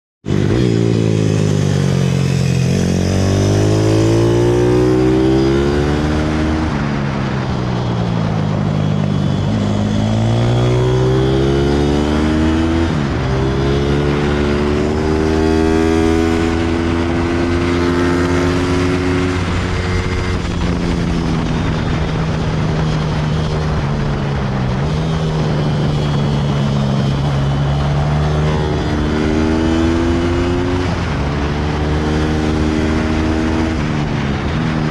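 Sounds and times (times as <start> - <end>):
pit bike engine revving: 9.4 - 34.9.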